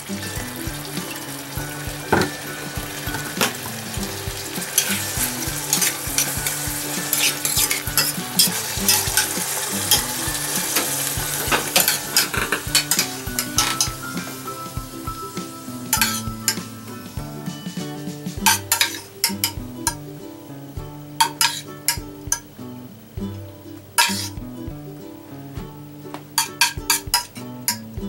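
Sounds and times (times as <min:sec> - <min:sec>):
sauce sizzling in a saucepan: 0:00.0 - 0:23.1, 0:23.9 - 0:27.9
metal spoon scraping a pan: 0:02.1 - 0:14.5, 0:15.9 - 0:16.8, 0:18.5 - 0:19.6, 0:21.2 - 0:22.4, 0:24.0 - 0:24.4.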